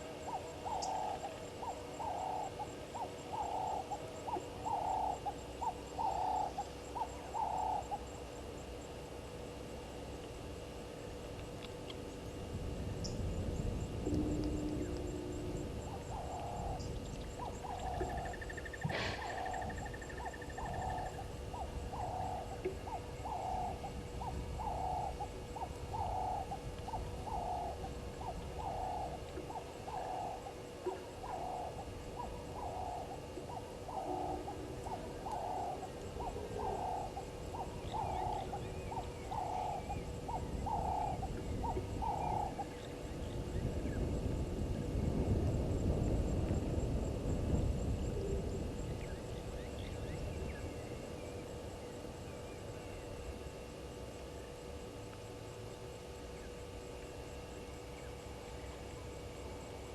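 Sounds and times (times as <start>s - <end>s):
animal hooting calls: 17.4s - 25.2s, 27.2s - 42.6s.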